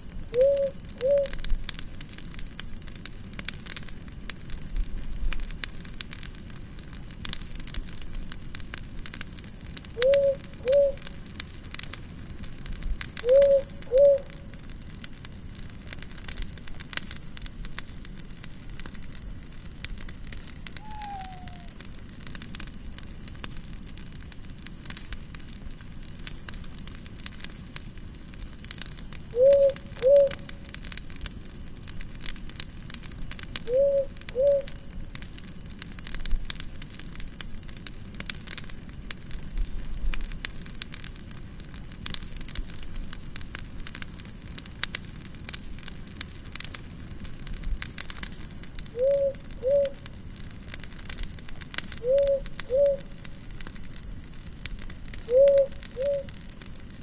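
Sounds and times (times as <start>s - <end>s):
wood fire crackling: 0.0s - 57.0s
rapid high chirps: 6.0s - 7.5s, 26.2s - 27.6s, 39.6s - 40.0s, 42.6s - 45.0s.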